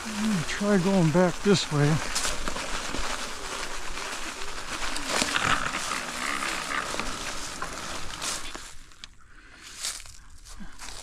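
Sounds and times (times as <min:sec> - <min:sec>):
tyre and brush noise: 0:00.0 - 0:09.0.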